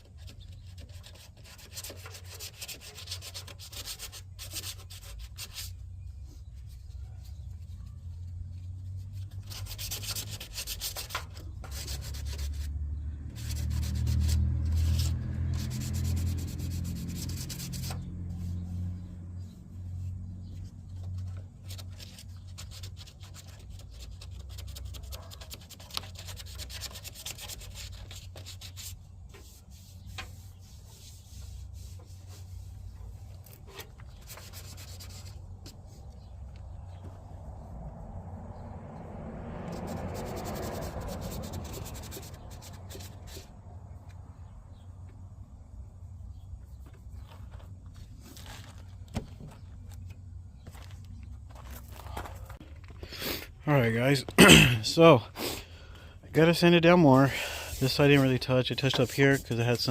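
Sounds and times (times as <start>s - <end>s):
sandpaper rubbing on filler: 0.2s - 5.8s, 9.1s - 12.7s, 13.3s - 18.9s, 21.7s - 33.2s, 34.1s - 35.4s, 39.7s - 43.5s, 57.4s - 59.9s.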